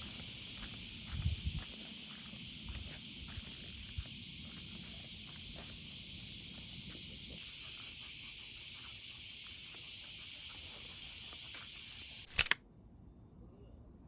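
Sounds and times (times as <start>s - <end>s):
faint footsteps: 0.0s - 12.0s
insects chorus: 0.0s - 12.4s
sharp double click: 12.2s - 12.6s.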